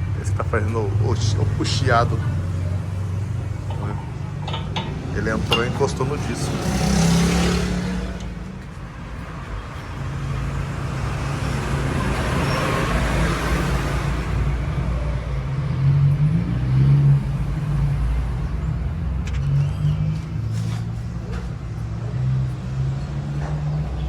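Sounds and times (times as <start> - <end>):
vehicle engines running: 0.0 - 24.0
vehicle passing: 0.5 - 18.4.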